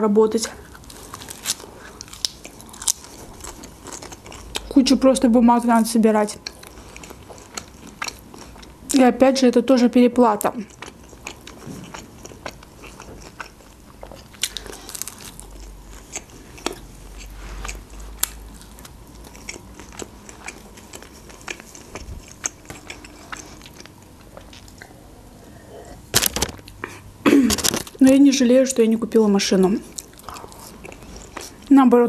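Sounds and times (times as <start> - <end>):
person biting and chewing crusty bread: 0.6 - 4.7, 6.4 - 8.8, 10.6 - 25.0, 29.8 - 31.7.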